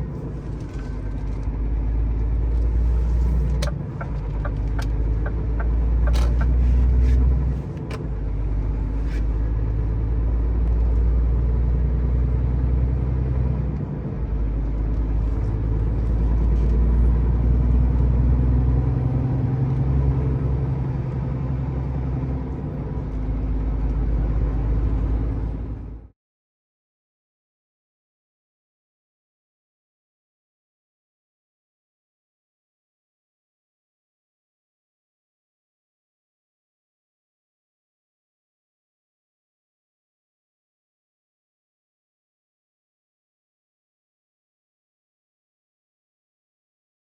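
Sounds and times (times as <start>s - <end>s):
truck diesel engine rumbling: 0.0s - 26.1s.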